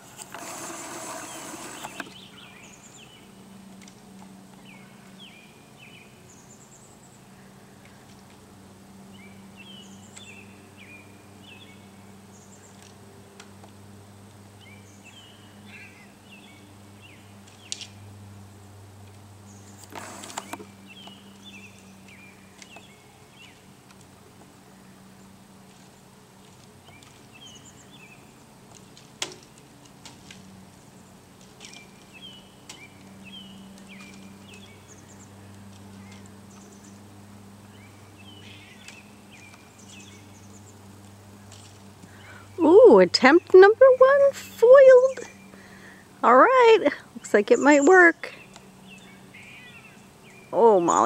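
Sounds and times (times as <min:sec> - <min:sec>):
brief scraping burst: 0:00.0 - 0:02.2
steady low hum: 0:00.0 - 0:51.0
bird chirping phrases: 0:01.1 - 0:03.4, 0:09.1 - 0:12.8, 0:31.0 - 0:37.0, 0:37.7 - 0:40.8, 0:41.4 - 0:51.0.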